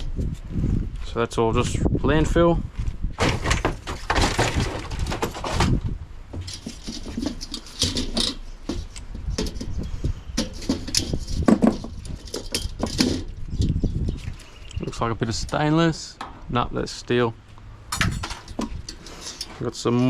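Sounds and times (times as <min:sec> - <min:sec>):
plastic and metal parts clattering: 0:03.2 - 0:14.5, 0:17.9 - 0:20.0.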